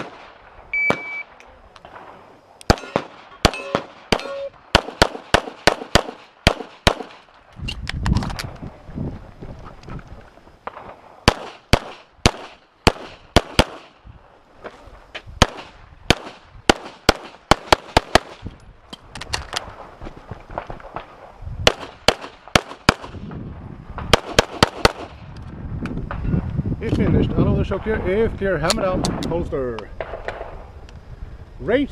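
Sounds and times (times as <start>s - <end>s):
handgun shots with echo: 2.7s - 7.2s.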